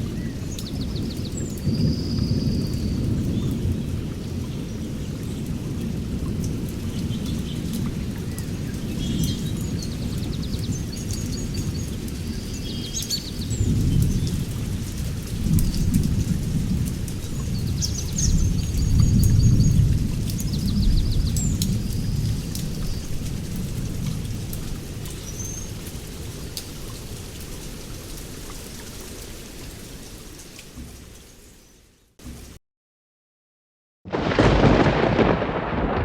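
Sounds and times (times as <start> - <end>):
steady rain: 0.0 - 32.6, 34.1 - 36.0
rolling thunder: 34.1 - 36.0.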